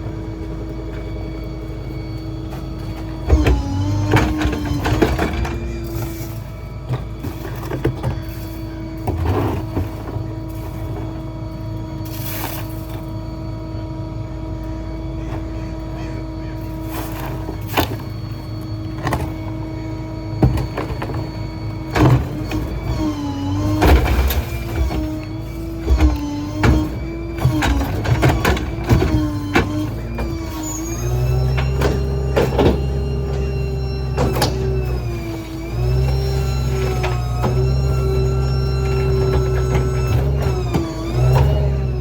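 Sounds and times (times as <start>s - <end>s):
hydraulic pump whine: 0.0s - 42.0s
debris knocks and clunks: 20.4s - 33.6s.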